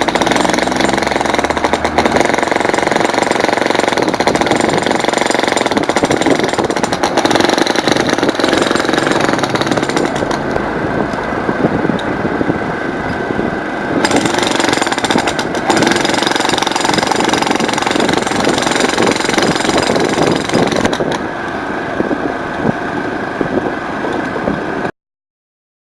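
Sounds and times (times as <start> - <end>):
jackhammer hammering concrete: 0.0 - 10.6, 14.0 - 21.2.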